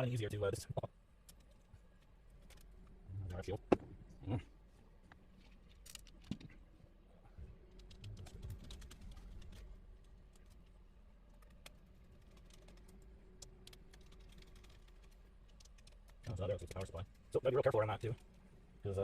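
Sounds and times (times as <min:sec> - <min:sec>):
small clicks of parts handled: 0:05.1 - 0:06.6.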